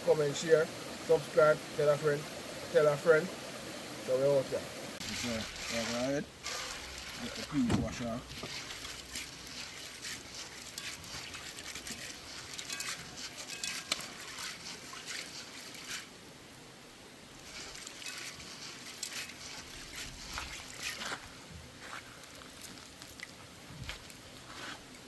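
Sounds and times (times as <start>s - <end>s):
peas washed by hand in water: 4.1s - 16.2s, 17.3s - 25.0s.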